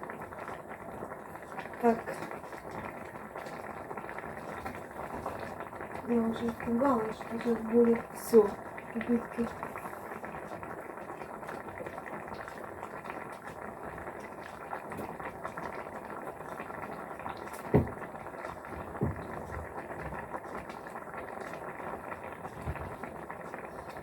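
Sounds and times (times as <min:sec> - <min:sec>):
soup bubbling in a pot: 0:00.0 - 0:24.0.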